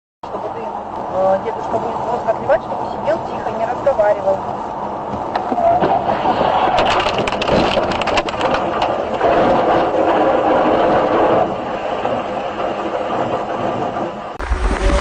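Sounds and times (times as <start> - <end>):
road and engine noise: 0.2 - 15.0
car crash cracking and crunching: 5.8 - 11.5.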